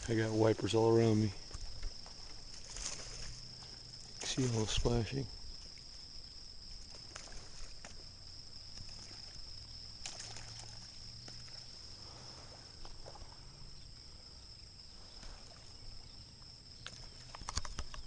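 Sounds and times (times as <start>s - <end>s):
insect chorus: 0.0s - 18.0s
fish splashing at surface: 10.0s - 11.6s.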